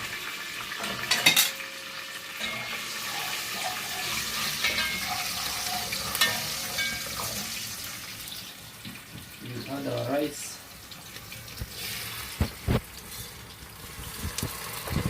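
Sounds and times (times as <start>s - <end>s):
rice sizzling in oil: 0.0s - 15.0s
clatters against pot: 0.8s - 1.6s, 2.4s - 7.3s.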